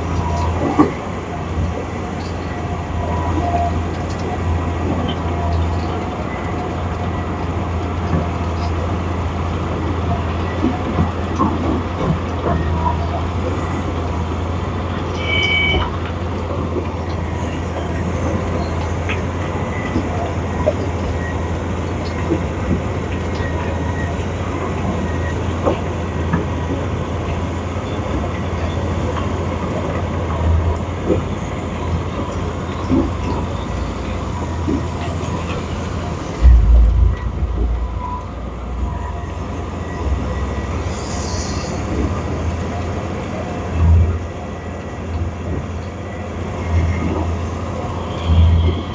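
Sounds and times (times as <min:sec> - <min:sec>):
heavy engine running: 0:00.0 - 0:48.9
high double tone: 0:36.4 - 0:39.5.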